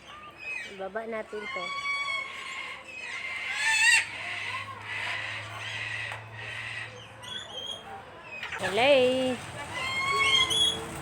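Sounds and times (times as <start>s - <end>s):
parrots calling: 9.6s - 11.0s.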